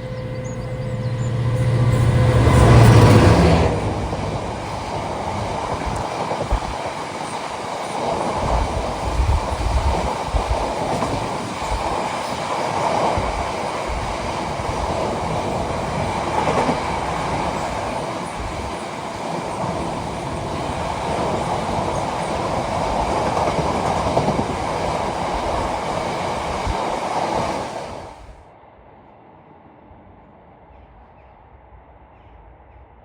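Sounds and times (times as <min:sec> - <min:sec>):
train passing on rails: 0:00.0 - 0:33.0.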